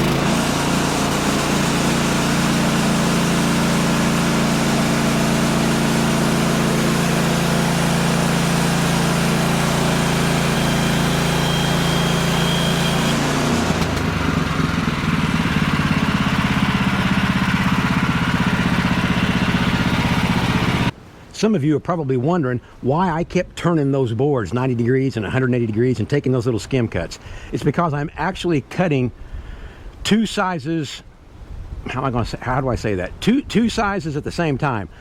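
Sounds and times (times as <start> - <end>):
sawmill petrol engine running: 0.0 - 21.0
band blade cutting wood: 0.2 - 14.7.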